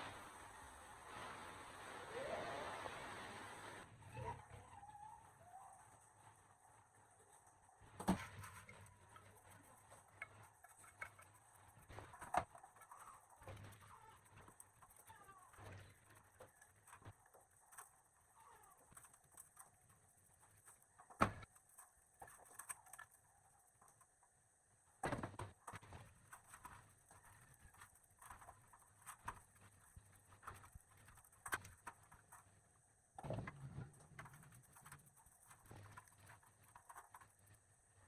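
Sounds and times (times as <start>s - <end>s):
faint clicks and taps: 7.2s - 24.4s.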